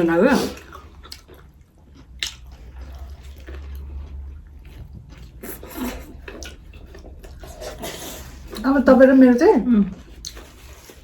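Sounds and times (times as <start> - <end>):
biting and chewing food: 0.6 - 8.6, 9.8 - 11.0
wet mouth clicks and smacks: 2.2 - 2.5.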